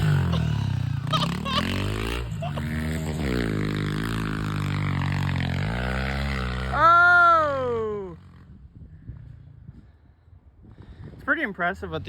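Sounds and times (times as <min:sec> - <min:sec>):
small motorbike engine revving: 0:00.0 - 0:08.2.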